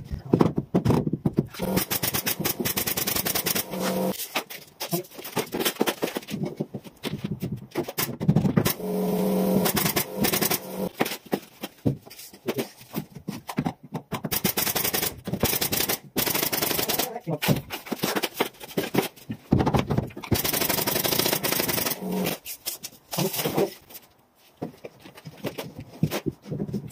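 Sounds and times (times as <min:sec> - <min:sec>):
nail gun shots: 0:01.6 - 0:04.2, 0:20.4 - 0:22.4.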